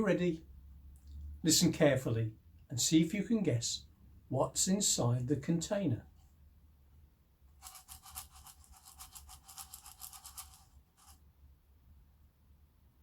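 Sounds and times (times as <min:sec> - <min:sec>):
container rattling when shaken: 0:07.6 - 0:11.2.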